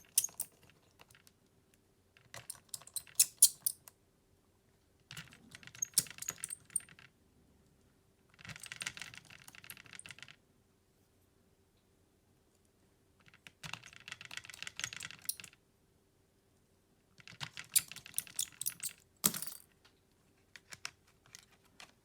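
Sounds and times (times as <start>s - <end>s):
small parts scraping and rattling: 0.0s - 1.2s, 2.2s - 3.9s, 5.1s - 7.1s, 17.4s - 19.7s.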